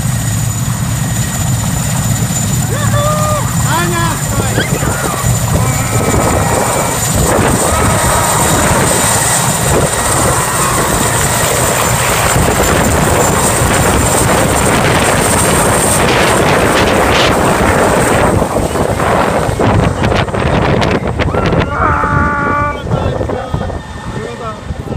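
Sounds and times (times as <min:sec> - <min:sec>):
helicopter rotor blades beating: 0:00.0 - 0:24.9
high turbine whine: 0:00.0 - 0:24.9.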